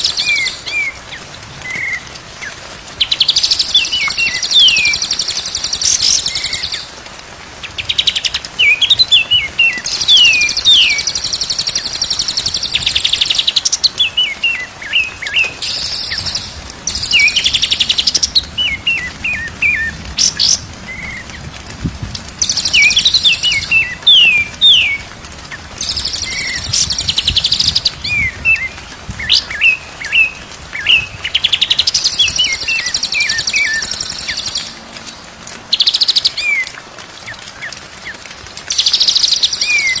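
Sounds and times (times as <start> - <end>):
bird whistling and trilling song: 0.0 - 1.0, 3.0 - 6.9, 7.8 - 21.2, 22.4 - 25.1, 25.8 - 34.8.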